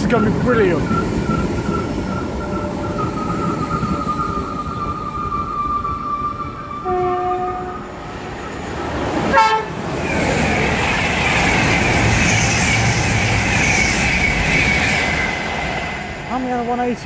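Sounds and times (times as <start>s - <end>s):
express train passing: 0.0s - 17.0s
train horn: 6.7s - 8.0s, 9.3s - 9.8s.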